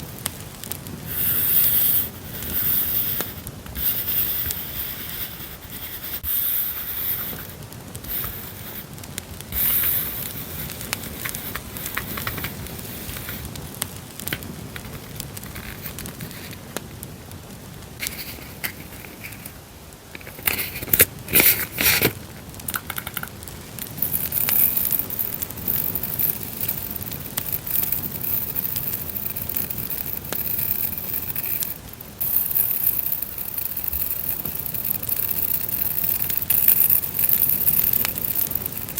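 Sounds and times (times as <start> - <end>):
campfire crackling: 0.0 - 38.9
paper and plastic crinkling: 9.6 - 13.5, 14.3 - 16.7, 18.0 - 38.9.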